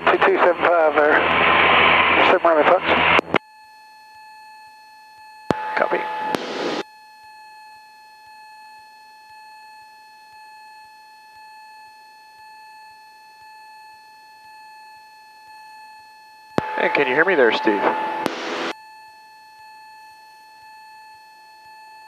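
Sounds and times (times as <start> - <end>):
high-pitched electrical whine: 5.5 - 6.8, 16.6 - 18.8.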